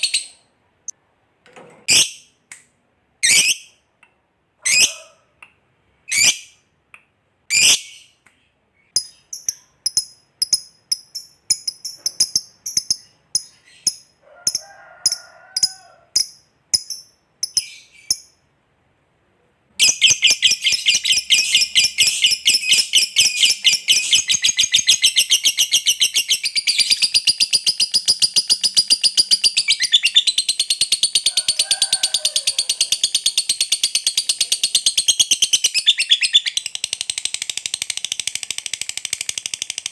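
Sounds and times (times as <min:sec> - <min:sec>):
lovebird chirping and trilling: 0:00.0 - 0:00.5, 0:01.9 - 0:02.3, 0:03.2 - 0:03.8, 0:04.6 - 0:05.1, 0:06.1 - 0:06.6, 0:07.5 - 0:08.2, 0:08.8 - 0:14.6, 0:15.6 - 0:18.4, 0:19.8 - 0:31.7, 0:32.5 - 0:39.8.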